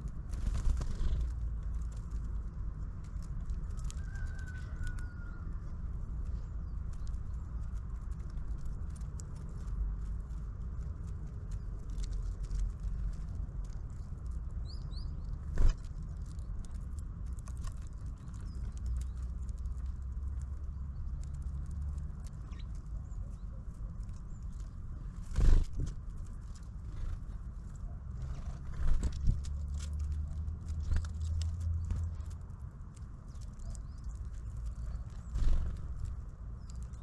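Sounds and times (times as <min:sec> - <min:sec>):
steady low rumble: 0:00.0 - 0:37.0
small high bird chirps: 0:22.2 - 0:23.6.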